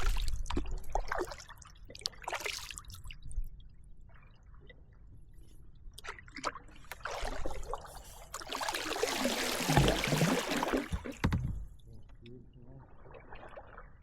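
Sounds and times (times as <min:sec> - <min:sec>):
paddle splashing water: 0:06.0 - 0:14.0.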